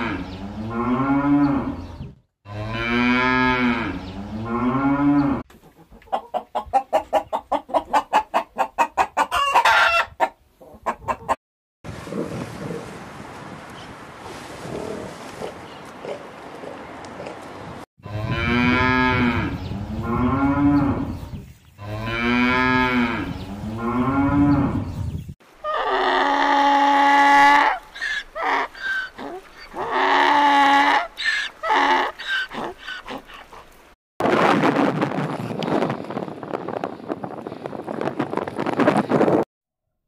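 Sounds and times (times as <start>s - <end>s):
cattle mooing: 18.0s - 21.1s, 21.8s - 24.8s.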